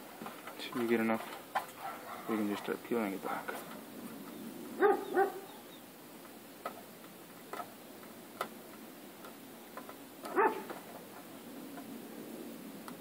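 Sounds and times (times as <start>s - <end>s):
dog barking: 4.8s - 5.5s, 10.3s - 10.7s.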